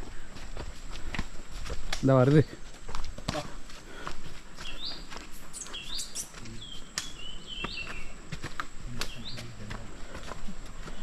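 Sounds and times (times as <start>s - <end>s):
sharp clicks: 6.9s - 7.1s.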